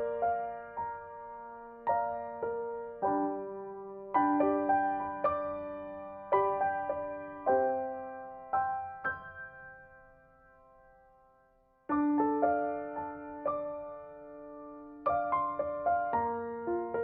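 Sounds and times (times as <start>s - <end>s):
soft solo piano: 0.0s - 17.0s.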